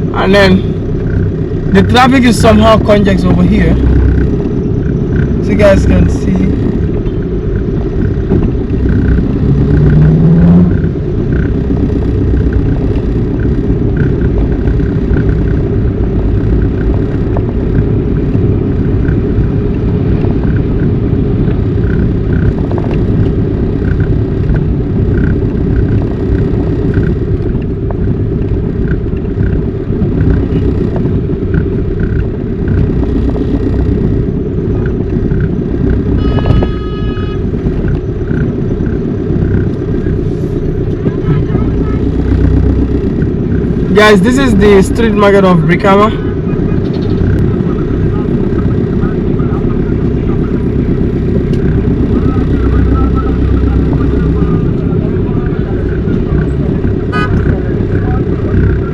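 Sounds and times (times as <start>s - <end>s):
engine and road rumble: 0.0s - 58.9s
faint regular ticking: 0.6s - 36.6s, 37.4s - 58.9s
car horn: 36.1s - 37.8s, 57.1s - 57.7s.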